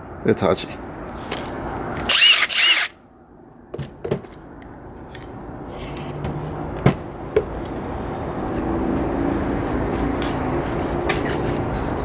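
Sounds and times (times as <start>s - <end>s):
impact driver motor whining: 2.0s - 2.9s
tool being handled knocks: 3.7s - 4.4s, 6.1s - 7.7s.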